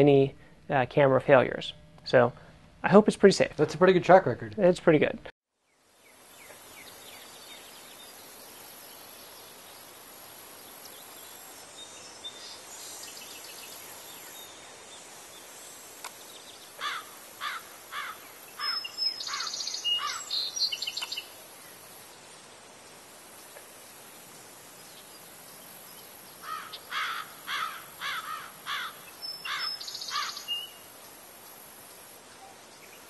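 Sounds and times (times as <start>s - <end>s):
background hiss: 0.0s - 33.0s
buzzy bird calls: 16.8s - 21.3s, 26.4s - 30.8s.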